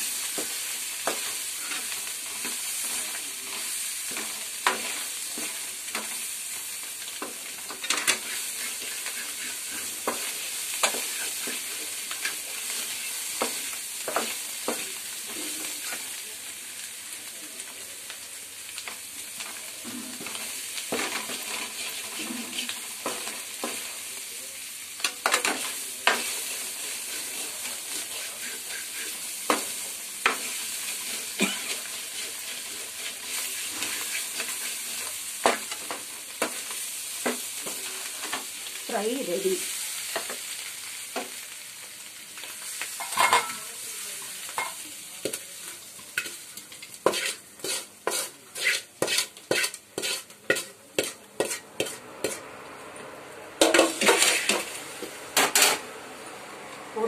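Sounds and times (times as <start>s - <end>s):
potatoes sizzling in oil: 0.0s - 57.0s
wooden spatula scraping a pan: 7.2s - 14.9s, 25.3s - 38.4s, 46.2s - 52.5s, 53.6s - 55.8s.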